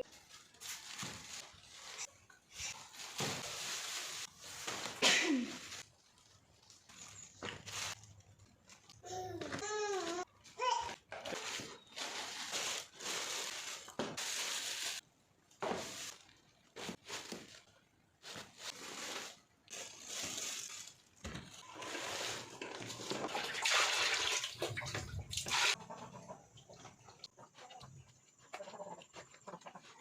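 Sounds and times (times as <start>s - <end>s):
water splashing and running: 22.8s - 25.8s.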